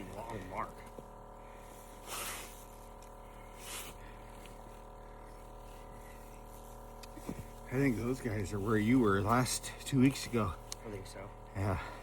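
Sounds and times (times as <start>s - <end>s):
steady low hum: 0.0s - 12.0s
person sniffing: 2.0s - 2.6s.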